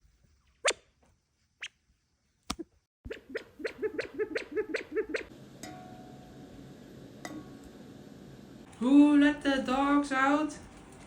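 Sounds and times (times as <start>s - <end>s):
quail calling: 3.2s - 5.3s.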